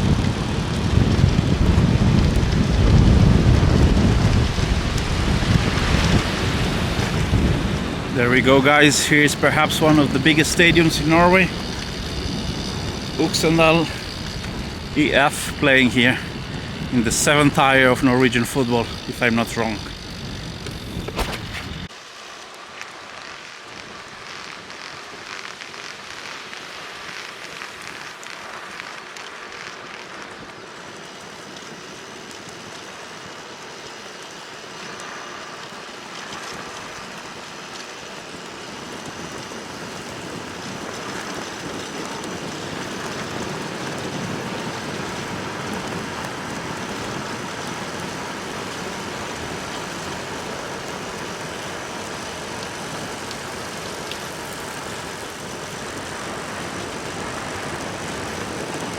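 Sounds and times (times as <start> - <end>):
tyres rolling on road: 0.0 - 21.9, 29.0 - 58.9
wind rushing: 0.0 - 21.9.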